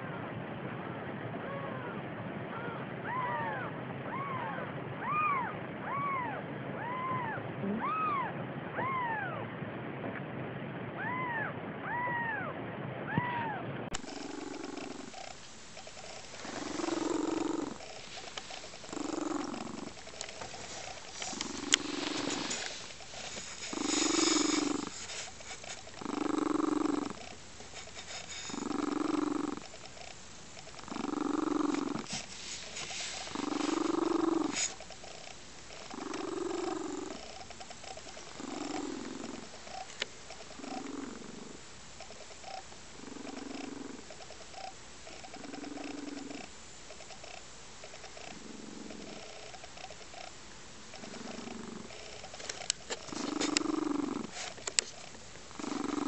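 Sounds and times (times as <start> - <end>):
cat purring: 13.9 - 56.0.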